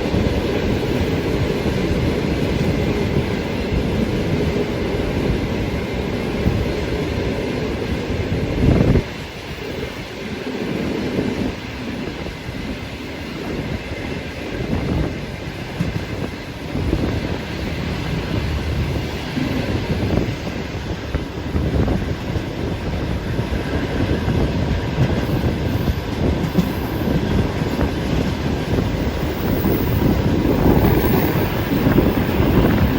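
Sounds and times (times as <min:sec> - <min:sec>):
train wheels clattering over rail joints: 0:14.6 - 0:32.9.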